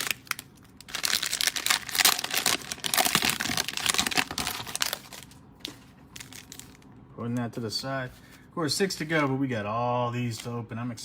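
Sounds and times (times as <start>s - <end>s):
plastic wrapper crinkling: 0.0s - 6.9s.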